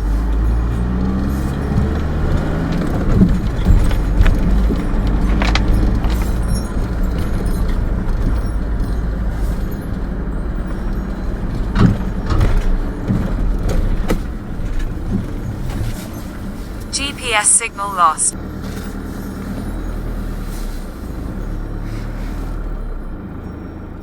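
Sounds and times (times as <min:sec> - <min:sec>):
van engine running: 0:00.0 - 0:16.9
road noise: 0:00.0 - 0:24.0.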